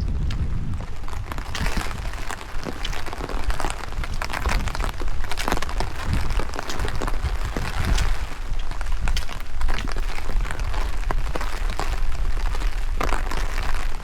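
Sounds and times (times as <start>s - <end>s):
raindrops clicking on microphone: 0.0s - 14.0s
wind rumble on microphone: 0.0s - 14.0s.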